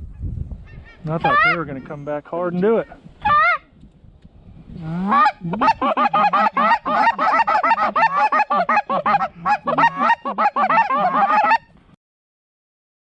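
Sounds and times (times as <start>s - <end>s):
geese honking: 0.7s - 1.9s, 4.8s - 11.7s.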